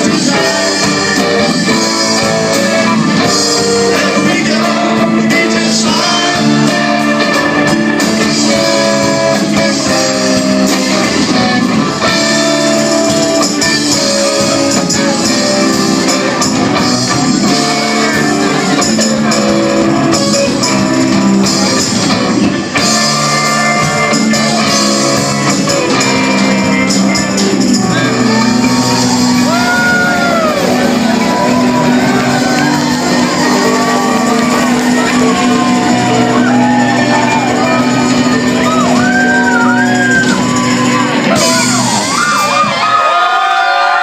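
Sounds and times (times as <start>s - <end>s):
live band playing loudly: 0.0s - 44.0s
shouted vocals: 25.5s - 44.0s.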